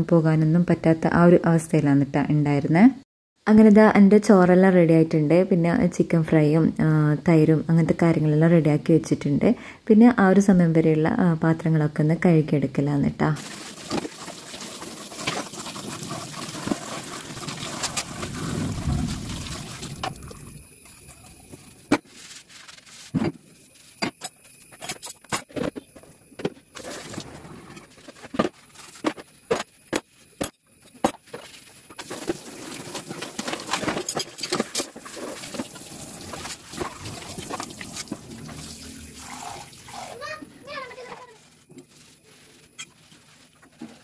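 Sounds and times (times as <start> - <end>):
water running and splashing: 13.4 - 21.9, 32.0 - 33.9, 34.7 - 41.1.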